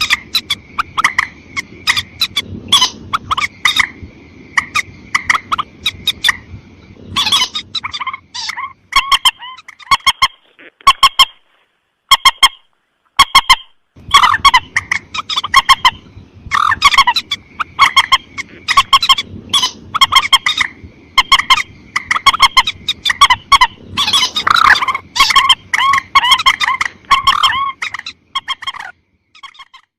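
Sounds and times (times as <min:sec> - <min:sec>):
rail bird harsh honking calls: 0:07.2 - 0:11.4, 0:12.1 - 0:29.7.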